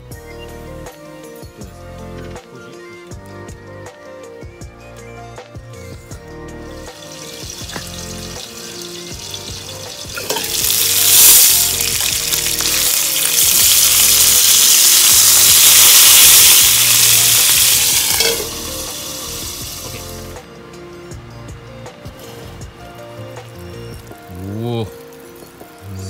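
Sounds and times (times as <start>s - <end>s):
background music: 0.0s - 26.0s
patties sizzling in skillet: 6.8s - 20.4s.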